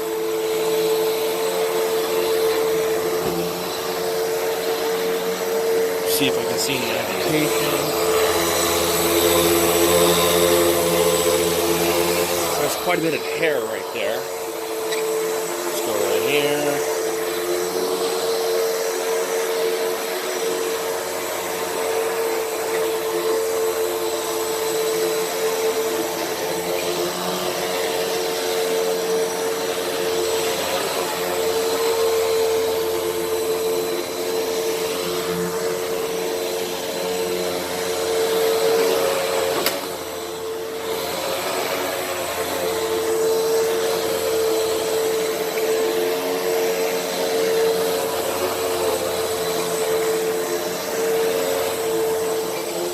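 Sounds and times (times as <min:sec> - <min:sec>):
vacuum cleaner motor whine: 0:00.0 - 0:52.9
vacuum cleaner click: 0:01.7 - 0:12.9, 0:38.5 - 0:52.9.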